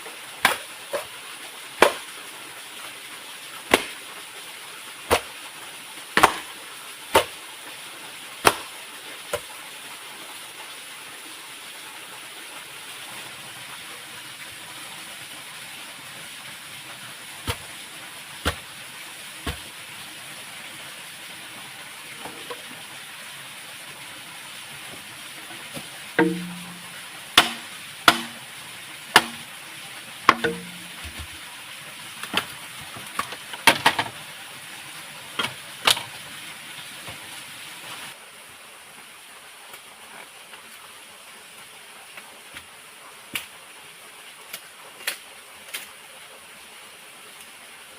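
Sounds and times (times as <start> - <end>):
rushing water: 0.0 - 47.9
blade chopping wood: 1.8 - 2.0, 3.7 - 4.0, 5.1 - 5.3, 6.2 - 6.5, 7.1 - 7.4, 8.4 - 8.7, 18.4 - 18.6, 19.4 - 19.7, 26.2 - 28.4, 29.2 - 29.5, 30.3 - 31.3.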